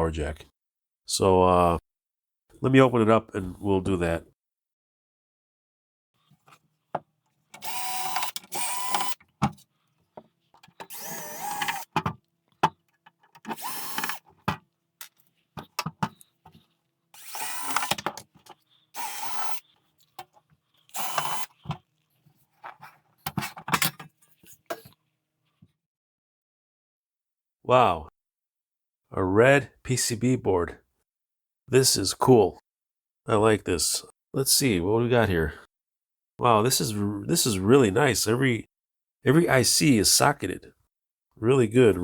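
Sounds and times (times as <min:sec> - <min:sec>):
electric screwdriver motor whine: 0:07.6 - 0:09.2, 0:10.8 - 0:12.0, 0:13.5 - 0:14.3, 0:17.2 - 0:18.1, 0:19.0 - 0:19.7, 0:20.9 - 0:21.6
clicks of screws and metal: 0:17.2 - 0:21.8.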